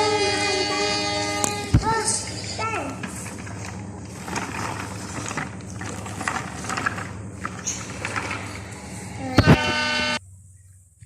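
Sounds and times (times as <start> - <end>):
loud buzzy tone: 9.0 - 10.4.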